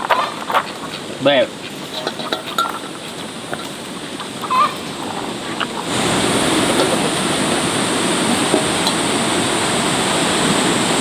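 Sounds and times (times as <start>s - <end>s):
poultry calls: 0.0s - 7.3s
rain hissing: 0.0s - 11.0s.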